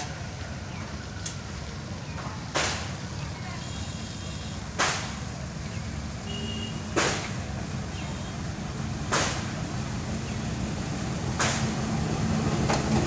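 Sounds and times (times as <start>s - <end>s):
freight train rumbling: 0.0s - 13.0s
sharp clacks of train: 2.1s - 3.2s, 4.6s - 5.4s, 6.4s - 8.0s, 8.9s - 13.0s.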